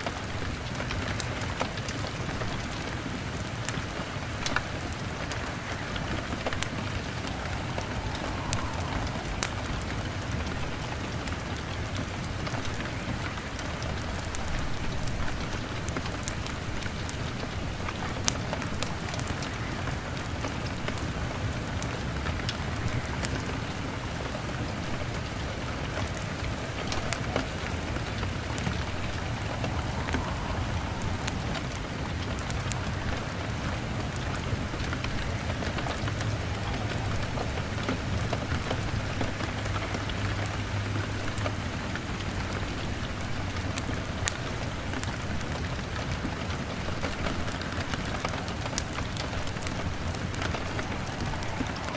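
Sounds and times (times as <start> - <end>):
fire crackling: 0.0 - 51.9
rain pattering on a window: 0.0 - 51.9.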